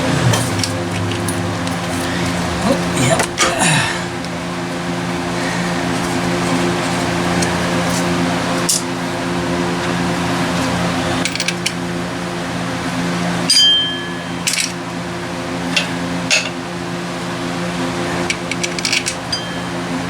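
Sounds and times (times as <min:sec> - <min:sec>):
steady mechanical hum: 0:00.0 - 0:20.0
metal parts clinking: 0:00.1 - 0:03.6, 0:11.2 - 0:11.8, 0:13.5 - 0:14.8, 0:18.3 - 0:19.8.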